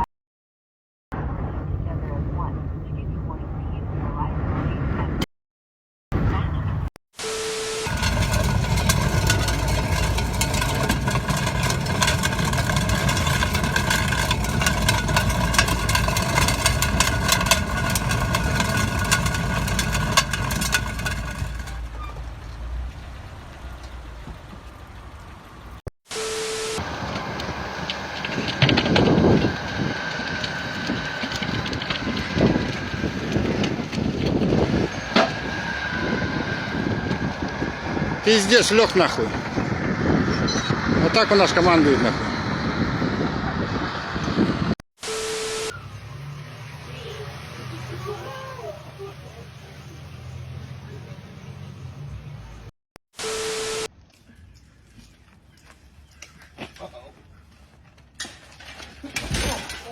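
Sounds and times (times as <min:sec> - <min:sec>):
steady whine: 0:07.2 - 0:21.9, 0:26.1 - 0:46.0, 0:53.2 - 0:53.9
large vehicle engine running: 0:07.2 - 0:53.9
heavy rattling and clattering: 0:07.8 - 0:22.2, 0:27.0 - 0:39.7.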